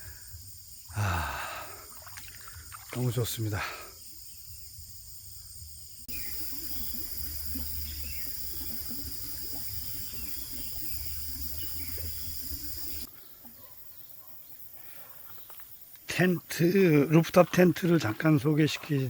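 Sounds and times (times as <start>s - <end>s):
running water: 1.0s - 3.9s, 6.1s - 13.7s, 16.1s - 19.0s.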